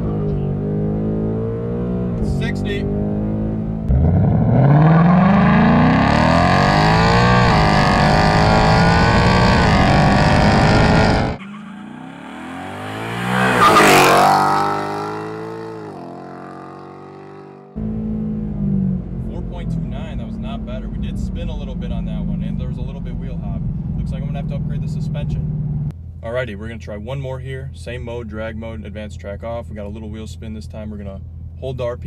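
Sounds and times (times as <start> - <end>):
car rushing past: 0.0 - 19.0
car engine accelerating: 0.0 - 26.0.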